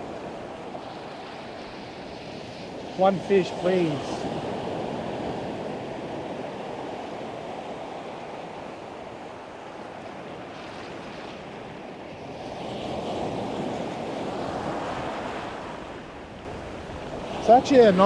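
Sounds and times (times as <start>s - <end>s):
ocean surf breaking: 0.9s - 5.8s, 16.5s - 18.0s.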